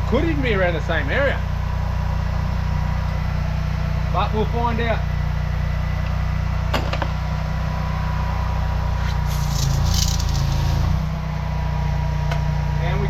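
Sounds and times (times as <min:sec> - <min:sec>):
drain jetter engine humming: 0:07.8 - 0:11.1
brief hiss: 0:09.0 - 0:11.0.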